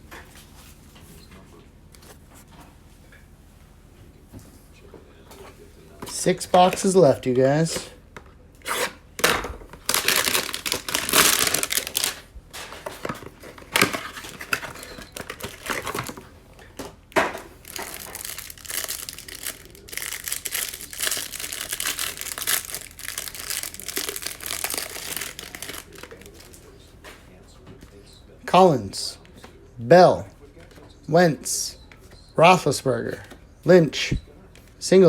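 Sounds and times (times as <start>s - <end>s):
plastic wrap crinkling and ripping: 8.7s - 16.2s, 17.6s - 26.7s.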